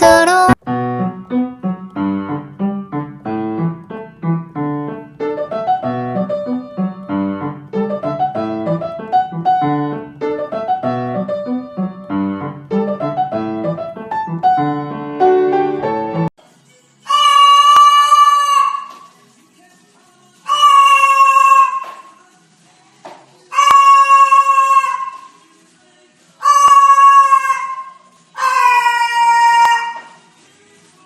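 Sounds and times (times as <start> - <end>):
instrumental piano music: 0.0 - 16.3.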